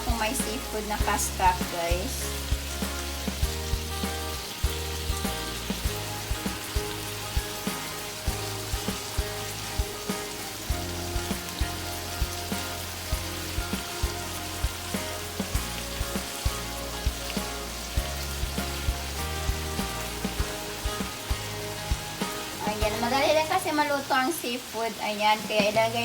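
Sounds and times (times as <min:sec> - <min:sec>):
music with steady beat: 0:00.0 - 0:23.6
seafood sizzling in a pan: 0:00.0 - 0:26.0.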